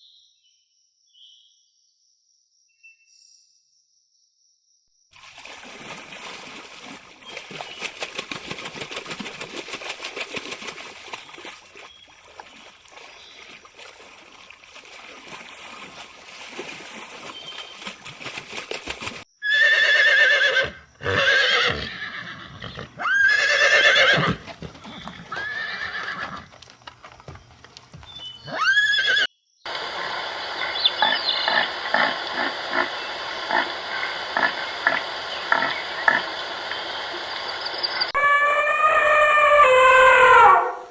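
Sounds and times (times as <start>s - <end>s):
horse whinnying: 19.4s - 26.5s, 28.4s - 29.3s, 38.2s - 40.9s.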